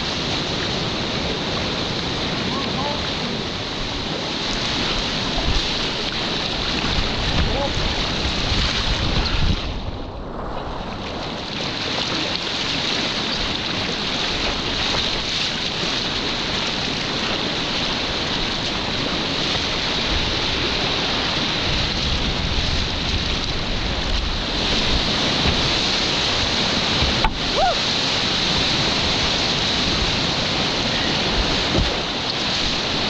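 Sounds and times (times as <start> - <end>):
river whitewater rushing: 0.0 - 9.5, 10.8 - 33.0
wind buffeting microphone: 0.0 - 33.0.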